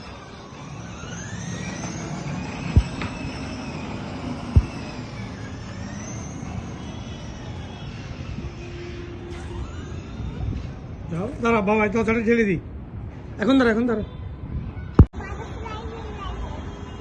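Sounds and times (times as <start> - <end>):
electric motor whining: 0.0 - 11.3
sharp thumps: 2.8 - 3.2, 4.5 - 4.8.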